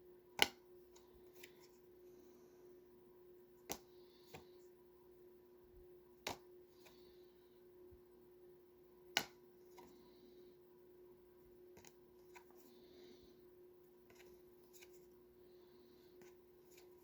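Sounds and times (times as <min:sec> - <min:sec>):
faint steady hum: 0:00.0 - 0:17.0
cards rustling and clicking: 0:03.6 - 0:04.6, 0:11.7 - 0:12.7, 0:13.9 - 0:15.2, 0:16.1 - 0:17.0.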